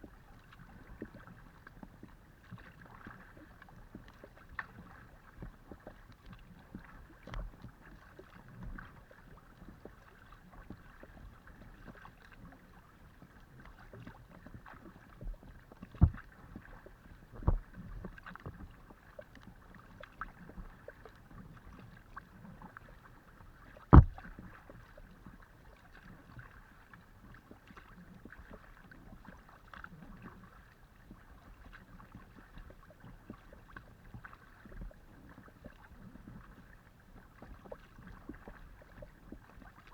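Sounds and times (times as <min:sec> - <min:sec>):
water splashing along hull: 0:00.0 - 0:39.9
kayak paddle strokes: 0:13.1 - 0:30.2.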